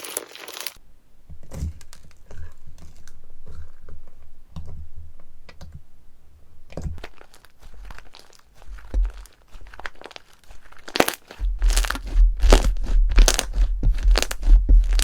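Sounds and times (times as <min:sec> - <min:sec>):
crinkling crunching sound: 0:07.0 - 0:15.0
dull low thuds: 0:11.4 - 0:15.0.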